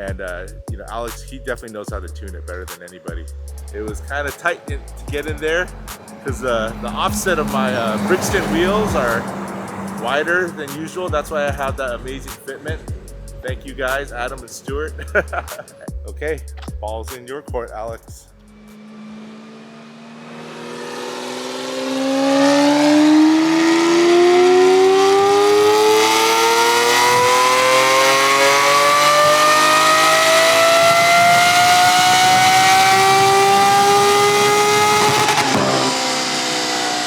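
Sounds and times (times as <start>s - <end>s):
car engine revving on dyno: 3.7s - 11.5s, 18.4s - 37.0s.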